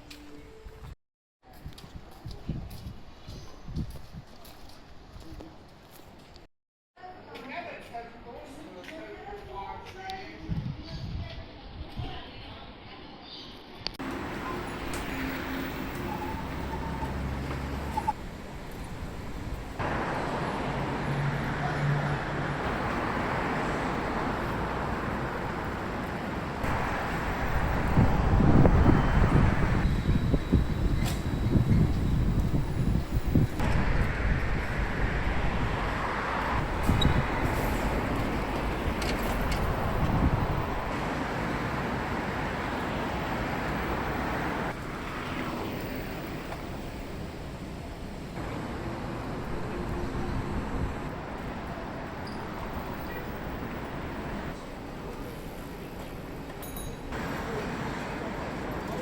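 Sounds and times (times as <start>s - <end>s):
passing vehicles: 14.0s - 59.0s.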